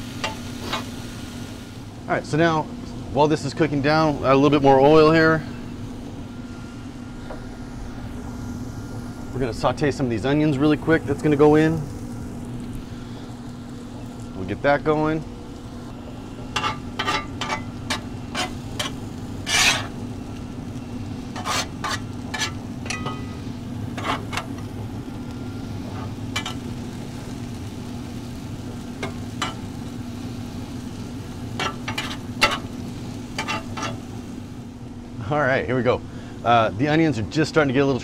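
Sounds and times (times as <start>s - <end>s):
meat sizzling on a skillet: 0.0s - 1.9s, 10.3s - 34.8s
low hum: 0.0s - 35.2s
metal spatula scraping and tapping: 16.6s - 19.9s, 21.4s - 23.3s.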